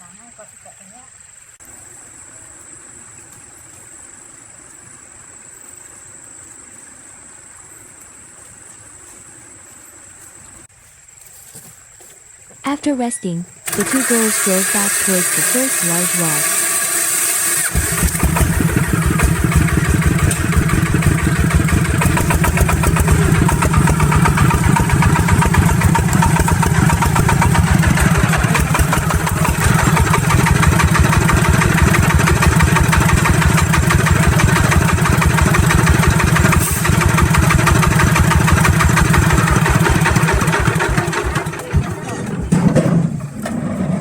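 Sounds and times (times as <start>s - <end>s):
truck engine chugging: 13.2s - 44.0s.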